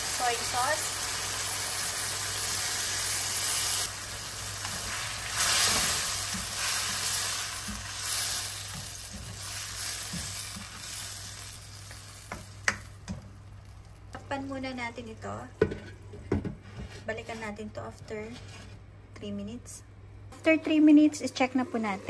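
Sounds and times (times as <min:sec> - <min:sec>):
food sizzling in a wok: 0:00.0 - 0:14.1
spatula stirring and scraping: 0:04.6 - 0:12.4.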